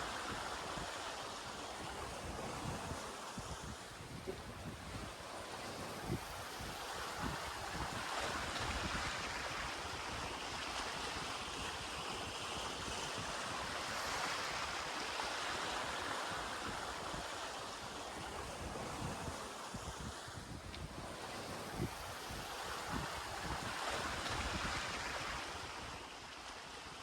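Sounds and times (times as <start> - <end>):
sea water rushing past hulls: 0.0 - 27.0
wind buffeting microphone: 1.7 - 10.4.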